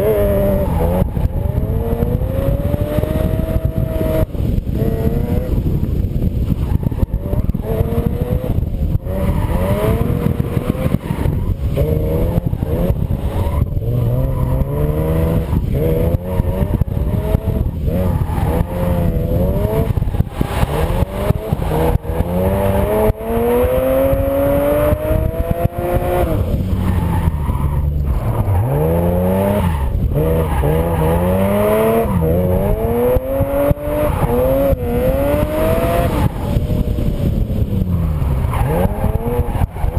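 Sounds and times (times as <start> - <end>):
misfiring car engine revving: 0.0 - 39.9.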